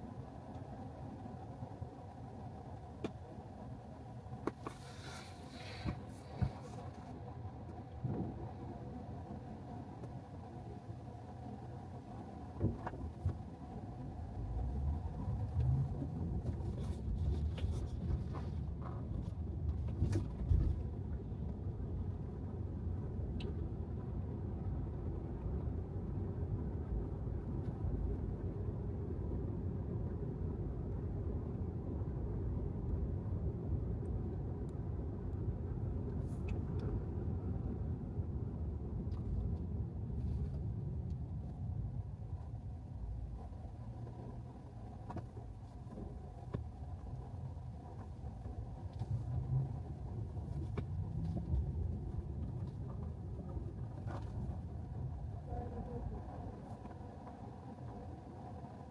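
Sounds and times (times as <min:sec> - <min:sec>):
tyres rumbling on road: 0:00.0 - 0:58.9.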